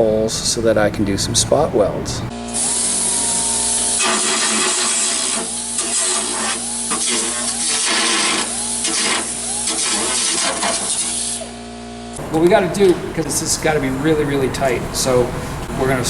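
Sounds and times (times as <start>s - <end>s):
steady hum: 0.0s - 16.0s
handheld power tool on steel: 2.3s - 12.3s.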